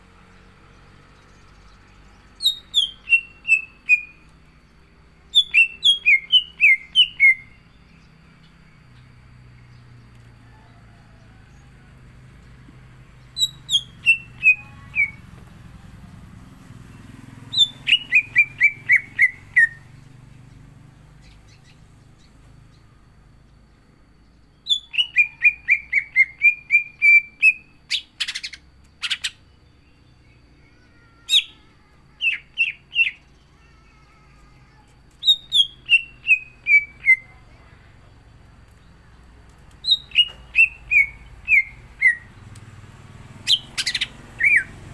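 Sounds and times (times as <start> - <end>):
bird singing descending phrases: 0.0 - 44.9
harsh rasping bird calls: 12.4 - 15.4, 16.6 - 22.9, 39.8 - 44.9.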